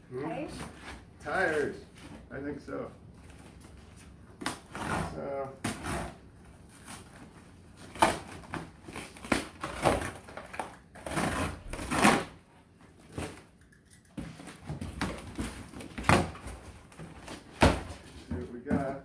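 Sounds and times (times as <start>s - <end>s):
cardboard box rustling and scraping: 3.4s - 12.4s.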